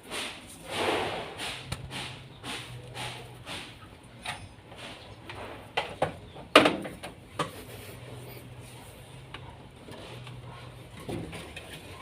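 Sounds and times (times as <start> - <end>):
hard parts knocking and clattering: 1.2 - 7.7.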